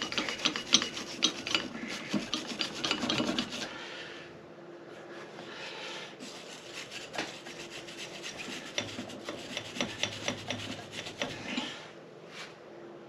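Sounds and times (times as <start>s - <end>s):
hand scrubbing strokes: 0.0s - 3.7s, 5.0s - 11.7s.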